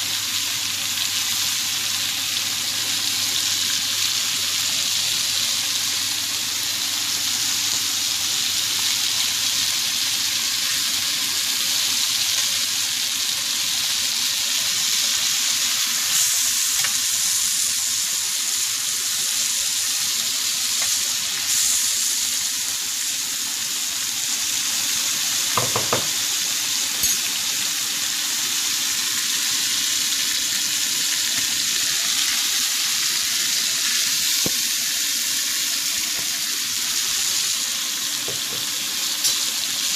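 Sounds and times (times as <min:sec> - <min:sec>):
chicken sizzling in oil: 0:00.0 - 0:39.9
utensil knocks: 0:25.6 - 0:26.1.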